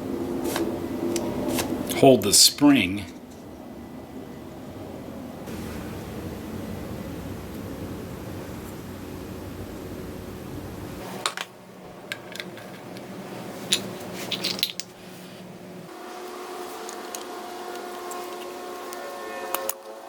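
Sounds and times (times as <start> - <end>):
steady background hiss: 0.0 - 20.0
small metal parts clinking: 12.1 - 15.0.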